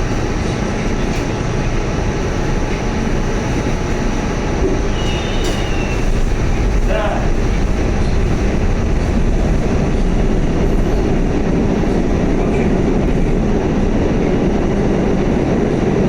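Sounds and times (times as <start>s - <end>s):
subway car wheels rumbling: 0.0s - 16.0s.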